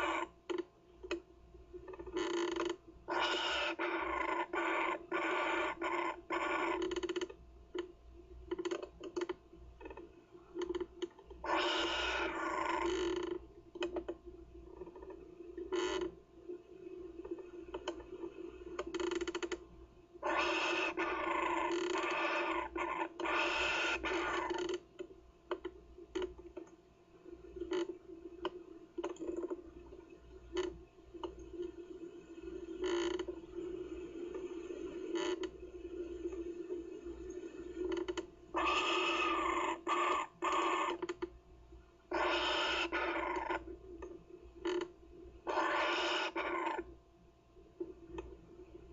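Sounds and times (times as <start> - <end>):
kookaburra chick rasping calls: 0.0 - 0.3, 3.1 - 6.8, 11.4 - 12.9, 20.2 - 24.6, 38.5 - 41.0, 42.1 - 43.6, 45.5 - 46.8
faint steady hum: 0.0 - 48.9
bird chick harsh rasping calls: 38.6 - 40.9.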